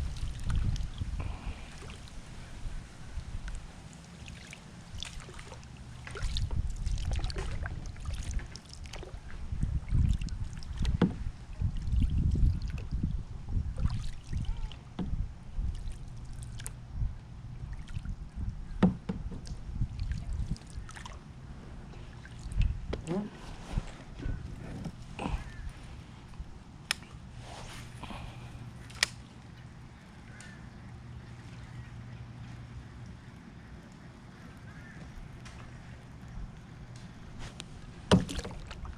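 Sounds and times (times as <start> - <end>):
water sloshing: 0.0 - 16.9, 17.5 - 38.9
kayak hull knocking: 10.8 - 11.3, 14.9 - 15.2, 18.8 - 19.5, 38.0 - 38.8.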